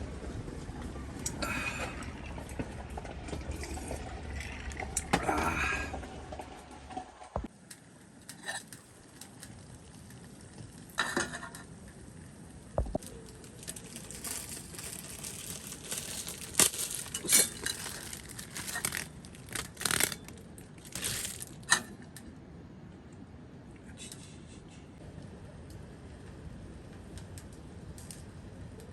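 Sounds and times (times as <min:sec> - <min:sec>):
rustling and crinkling: 0:12.8 - 0:22.2.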